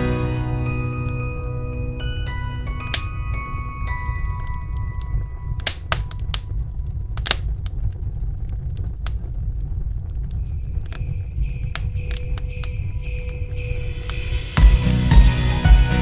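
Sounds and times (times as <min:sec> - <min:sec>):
song: 0:00.0 - 0:05.5, 0:13.8 - 0:16.0
wood fire crackling and popping: 0:01.9 - 0:15.1
tinkling metallic shaker: 0:10.4 - 0:16.0.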